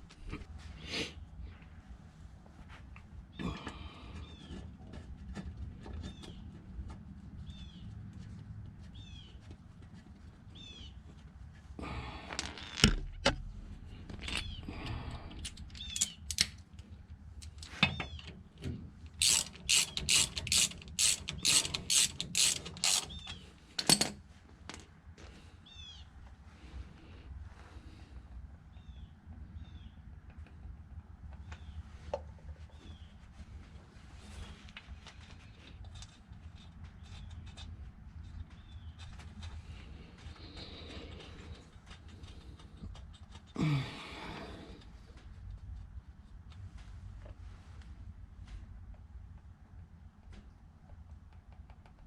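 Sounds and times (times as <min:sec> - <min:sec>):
hand ratchet clicking: 0:19.1 - 0:23.4.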